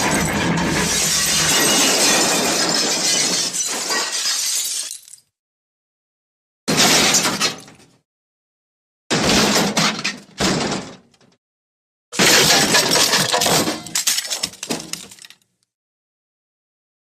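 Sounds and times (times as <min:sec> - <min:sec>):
debris clattering: 0:00.0 - 0:05.2, 0:12.2 - 0:15.5
glass shattering: 0:00.0 - 0:05.3, 0:12.2 - 0:15.4.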